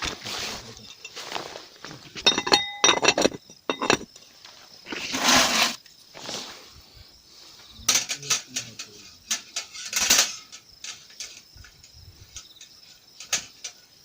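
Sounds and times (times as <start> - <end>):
rustling scraping noise: 0.0 - 6.8, 7.9 - 13.6
cookware and utensils clinking: 2.1 - 4.1, 7.9 - 11.4.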